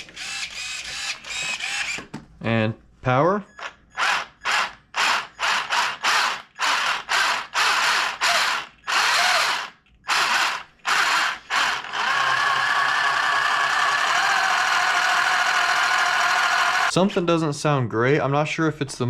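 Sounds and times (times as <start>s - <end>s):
electric motor whirring: 0.0s - 2.0s, 4.0s - 16.9s.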